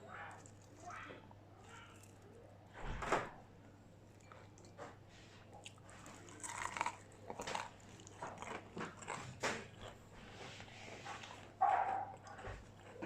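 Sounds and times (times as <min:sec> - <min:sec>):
crunching crispy fried food: 0:05.6 - 0:10.0.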